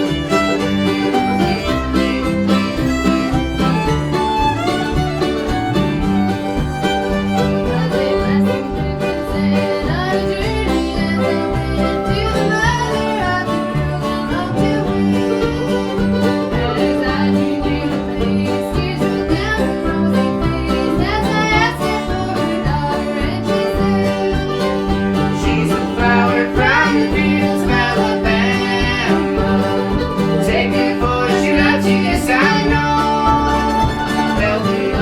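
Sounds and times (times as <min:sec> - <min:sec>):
banjo picking: 0:00.0 - 0:35.0
guitar picking: 0:00.0 - 0:35.0
low bass pulse: 0:00.0 - 0:35.0
sliding melody line: 0:00.0 - 0:35.0.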